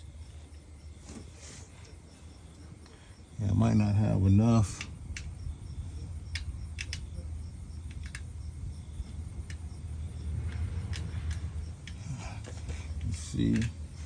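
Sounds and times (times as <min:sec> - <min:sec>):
wind buffeting microphone: 0:02.7 - 0:14.0
faint light clicks: 0:04.6 - 0:05.4, 0:06.3 - 0:07.1, 0:07.8 - 0:08.3, 0:09.0 - 0:14.0.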